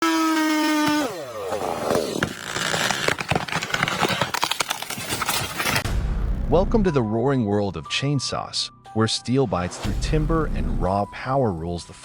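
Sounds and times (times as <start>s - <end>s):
chainsaw running at full throttle: 0.0s - 3.0s.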